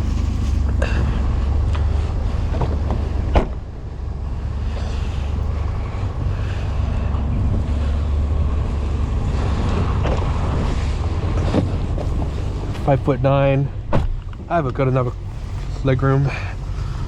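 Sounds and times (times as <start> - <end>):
car engine idling: 0.0 - 17.0
sharp thump: 13.9 - 14.2.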